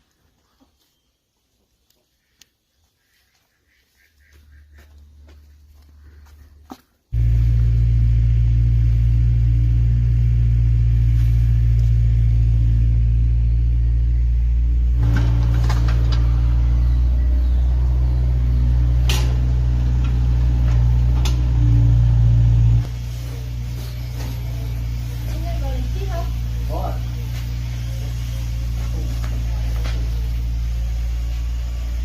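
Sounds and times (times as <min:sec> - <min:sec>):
low rumble of moving vehicle: 0:04.3 - 0:32.0
sharp clicks and knocks: 0:18.9 - 0:21.7.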